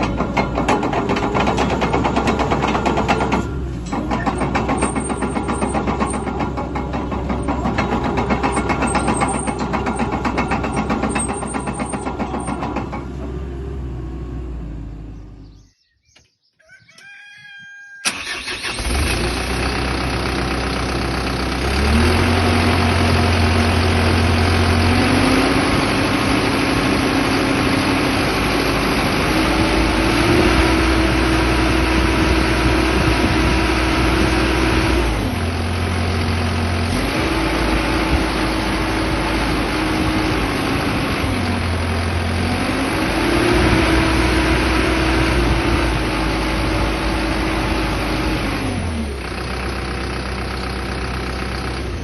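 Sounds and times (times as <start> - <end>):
diesel engine starting and revving: 0.0 - 15.7, 18.0 - 52.0.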